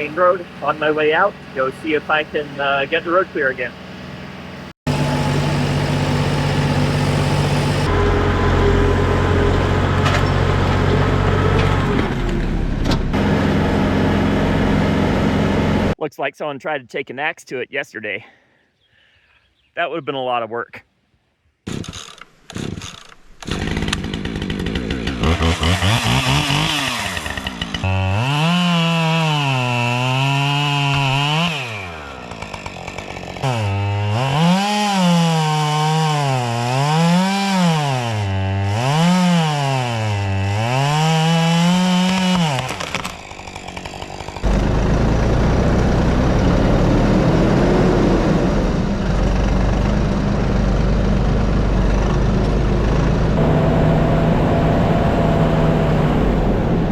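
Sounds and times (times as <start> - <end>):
deep steady engine: 0.0 - 16.0, 44.0 - 56.9
chainsaw cutting wood: 4.9 - 8.0, 21.6 - 49.1.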